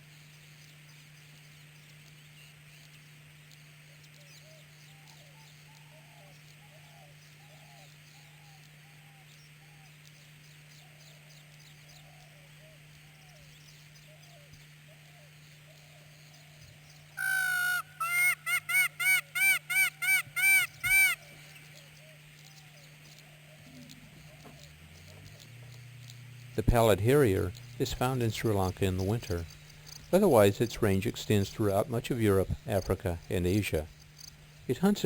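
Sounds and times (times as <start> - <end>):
bird calling loudly: 17.2 - 21.8
steady hiss: 20.7 - 35.0.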